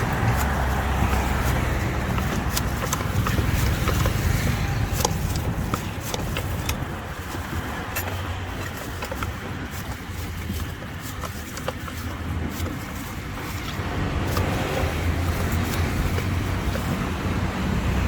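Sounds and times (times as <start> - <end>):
light clicks and knocks: 0.0 - 18.0
street traffic rumble: 0.0 - 18.0.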